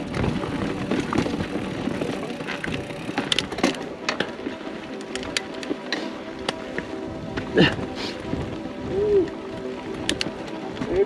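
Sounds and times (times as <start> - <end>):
bike clicks and knocks: 0.0 - 6.9, 10.0 - 11.0
tyres rolling over dirt and rock: 0.0 - 7.5.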